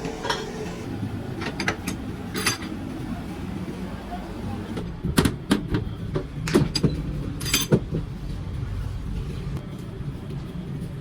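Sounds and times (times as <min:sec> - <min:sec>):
low machine hum: 0:00.0 - 0:01.4.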